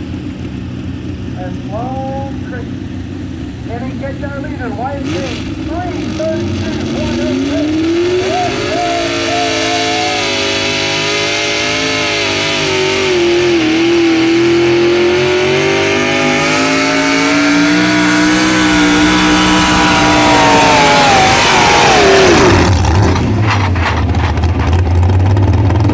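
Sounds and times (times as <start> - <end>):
low rumble with rattling: 0.0 - 9.0, 16.6 - 25.9
truck engine at high revs: 0.0 - 25.9.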